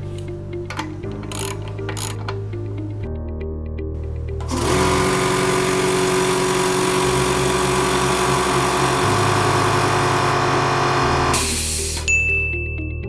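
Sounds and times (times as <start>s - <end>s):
background music: 0.0s - 13.0s
air compressor running: 4.4s - 12.1s.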